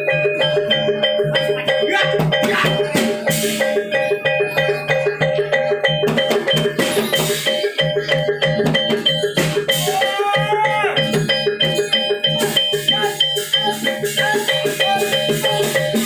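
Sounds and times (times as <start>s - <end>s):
drums: 0.0s - 16.0s
tuned metal percussion: 0.0s - 16.0s.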